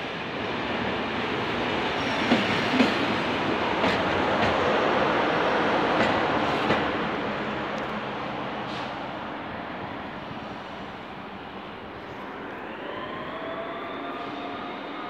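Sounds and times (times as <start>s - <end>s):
train wheels rumbling: 0.8s - 9.4s
train brakes squealing: 1.9s - 3.2s, 12.9s - 15.0s.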